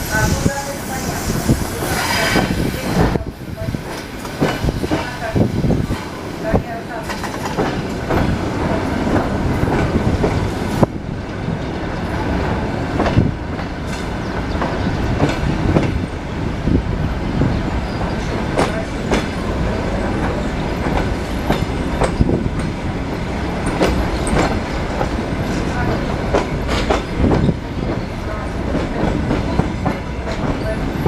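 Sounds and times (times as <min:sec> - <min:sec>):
train carriage rumble: 0:00.0 - 0:31.0
wheels clacking over rail joints: 0:17.9 - 0:31.0.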